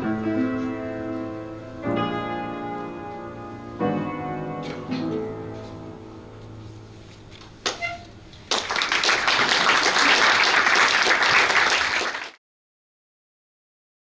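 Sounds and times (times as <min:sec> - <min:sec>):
piano notes: 0:00.0 - 0:07.1
audience applause: 0:08.5 - 0:12.4.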